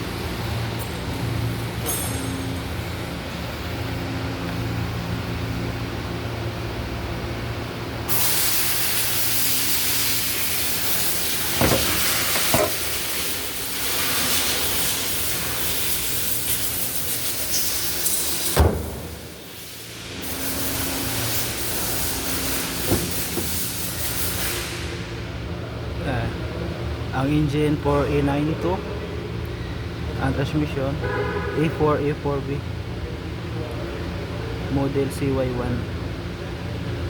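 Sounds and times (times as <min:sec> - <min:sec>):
loud steady hiss: 0:08.0 - 0:25.1
sharp knocks: 0:22.8 - 0:23.6.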